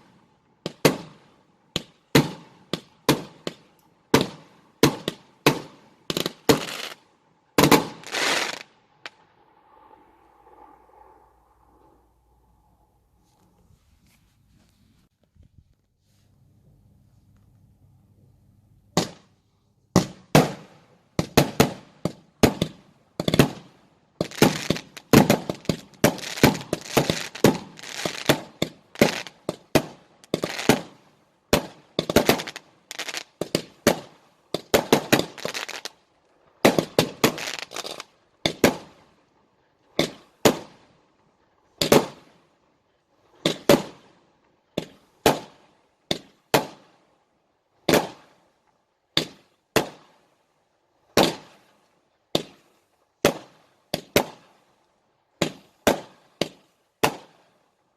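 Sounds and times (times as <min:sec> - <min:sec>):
fireworks bangs and crackles: 0:00.0 - 0:09.2, 0:19.9 - 0:39.2, 0:39.8 - 0:40.9, 0:41.7 - 0:42.4, 0:43.3 - 0:47.0, 0:47.8 - 0:48.4, 0:49.2 - 0:50.2, 0:51.1 - 0:51.7, 0:52.3 - 0:54.6, 0:55.4 - 0:57.5.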